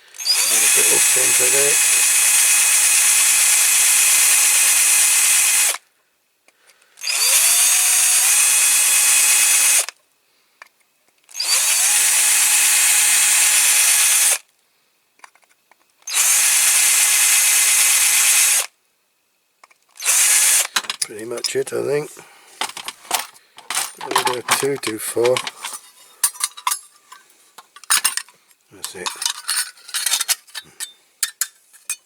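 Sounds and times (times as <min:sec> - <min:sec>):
electric drill whining: 0:00.2 - 0:05.8, 0:07.0 - 0:09.9, 0:11.4 - 0:14.4, 0:16.1 - 0:18.7, 0:20.0 - 0:21.0.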